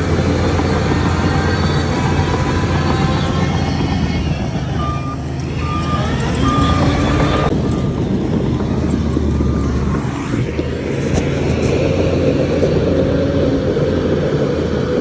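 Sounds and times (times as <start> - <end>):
diesel engines rumbling: 0.0 - 15.0
short high beeps: 4.8 - 7.5.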